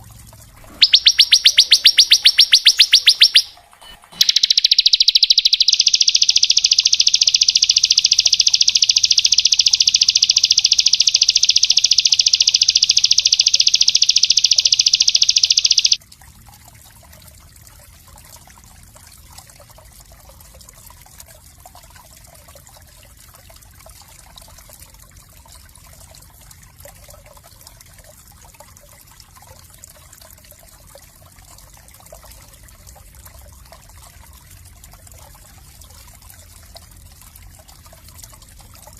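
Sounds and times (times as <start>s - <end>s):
faint water trickle: 0.0s - 38.9s
songbird trilling: 0.6s - 16.0s.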